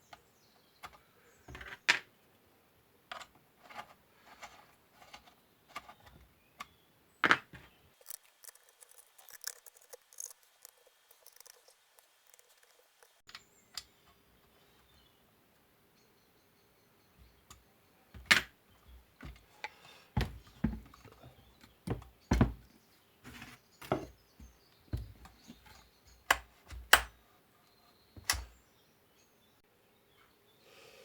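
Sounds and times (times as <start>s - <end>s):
parts clicking and knocking: 3.1s - 13.9s, 23.8s - 27.2s, 28.2s - 28.6s.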